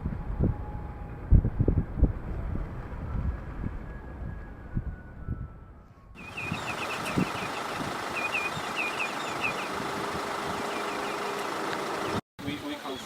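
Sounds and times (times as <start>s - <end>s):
wind rumble on microphone: 0.0s - 11.0s
high bird chirps: 6.2s - 9.8s, 10.6s - 11.3s.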